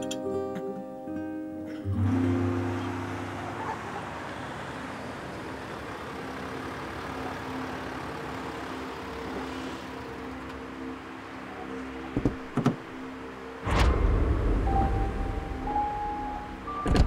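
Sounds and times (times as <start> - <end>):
car engine idling: 2.2 - 13.0.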